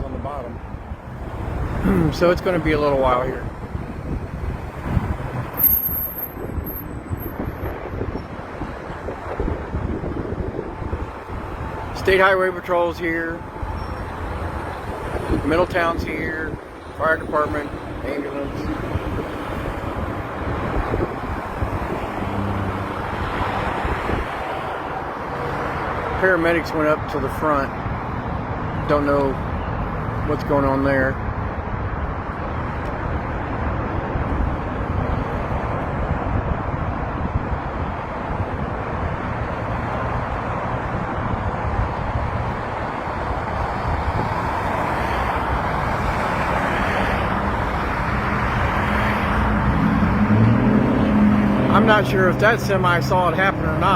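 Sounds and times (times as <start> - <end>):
wind buffeting microphone: 0.0 - 12.0, 13.5 - 25.2, 31.2 - 52.6
road traffic rumble: 0.0 - 53.9
engine hum: 38.6 - 53.9
vehicle approaching: 39.0 - 53.9.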